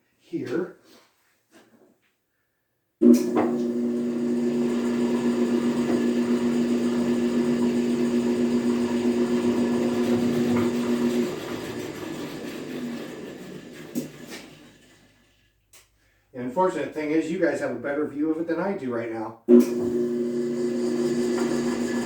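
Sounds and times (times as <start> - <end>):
electric motor humming: 3.2 - 13.2, 19.7 - 22.0.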